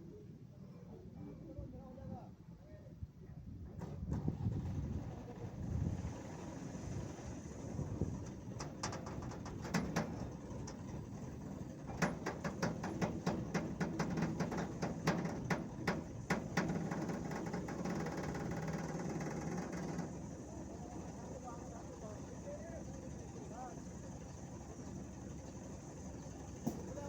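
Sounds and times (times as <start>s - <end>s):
low engine-like hum: 0.0s - 27.0s
sharp knocks and clicks: 8.2s - 20.2s, 26.6s - 27.0s.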